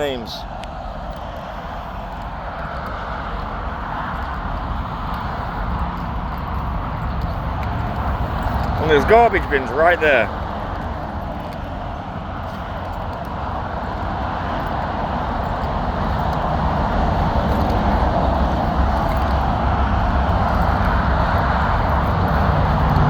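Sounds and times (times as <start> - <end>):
low engine hum: 0.0 - 23.0
vehicle engine and road noise: 0.0 - 23.0.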